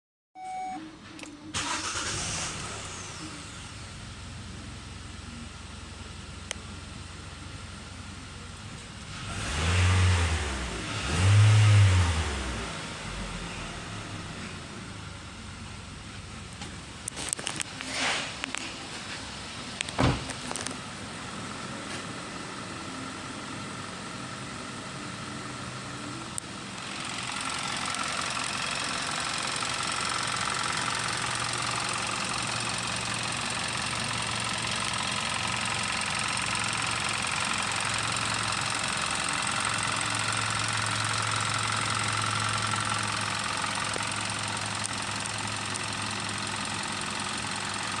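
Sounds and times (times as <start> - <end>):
car engine running: 1.6 - 48.0.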